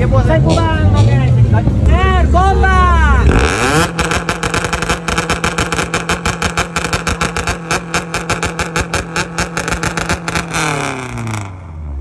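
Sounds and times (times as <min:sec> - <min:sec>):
engine bouncing on rev limiter: 0:03.1 - 0:12.0.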